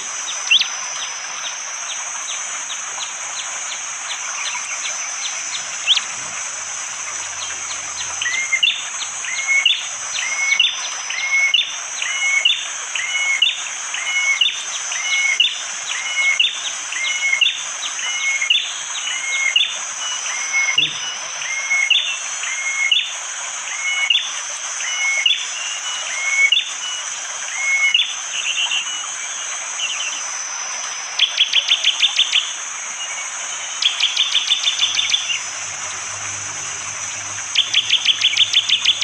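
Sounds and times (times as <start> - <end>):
bird calling: 0.0 - 17.4, 31.2 - 39.0
high-pitched drone: 3.0 - 12.2, 33.6 - 39.0.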